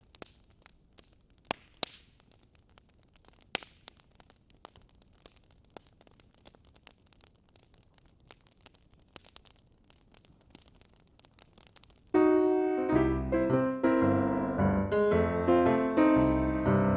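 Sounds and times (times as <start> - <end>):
campfire crackling: 0.0 - 13.6
piano music: 12.2 - 16.9.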